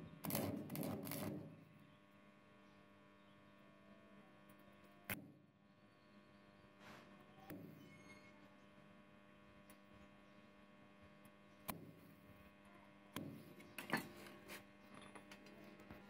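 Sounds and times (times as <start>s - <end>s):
welding arc crackles: 0.0s - 3.0s
welder mains hum: 0.0s - 16.0s.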